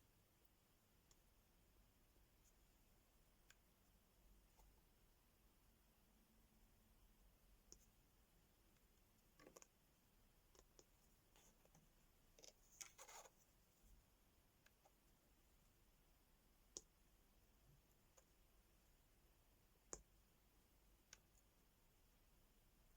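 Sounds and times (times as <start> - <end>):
faint small clicks and taps: 3.4 - 3.7, 7.6 - 8.0, 8.7 - 9.8, 10.4 - 14.0, 14.6 - 15.2, 16.7 - 17.0, 17.7 - 18.5, 19.8 - 20.2, 21.0 - 21.6.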